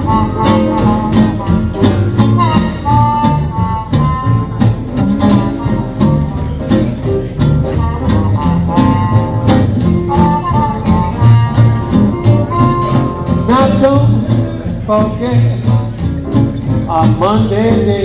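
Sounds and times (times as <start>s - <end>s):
horn melody: 0.0s - 14.2s
guitar chords: 0.0s - 18.0s
walking double bass: 0.0s - 18.0s.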